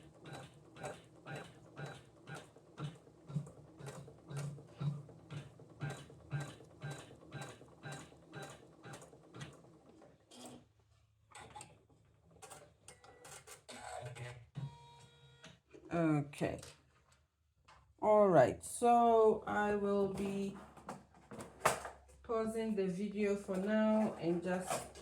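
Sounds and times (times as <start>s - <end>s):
sewing machine hum: 0.0s - 10.6s
sewing machine clicking: 0.2s - 10.0s.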